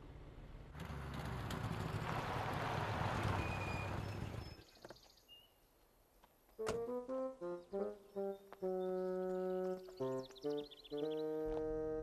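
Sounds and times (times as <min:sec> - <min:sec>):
car driving past: 0:00.7 - 0:04.6.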